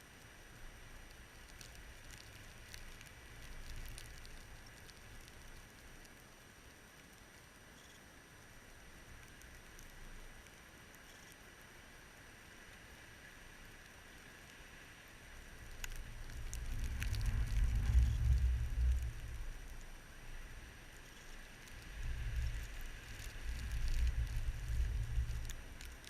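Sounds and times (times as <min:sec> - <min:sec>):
light ticks: 0:00.0 - 0:11.7, 0:12.4 - 0:26.0
faint steady hiss: 0:00.0 - 0:26.0
blizzard wind buffeting microphone: 0:15.3 - 0:26.0.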